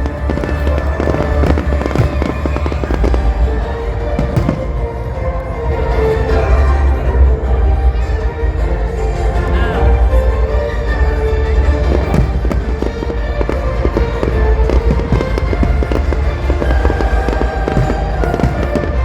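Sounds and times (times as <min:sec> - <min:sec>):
fireworks crackling and popping: 0:00.0 - 0:05.6, 0:11.8 - 0:19.0
background music: 0:00.0 - 0:19.0.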